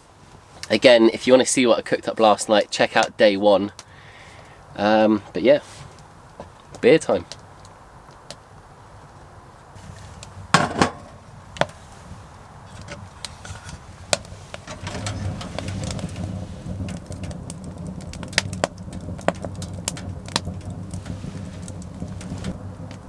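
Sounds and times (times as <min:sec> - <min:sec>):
low steady rumble: 0:09.7 - 0:23.0
beer can cracking open: 0:10.0 - 0:11.8, 0:12.6 - 0:23.0.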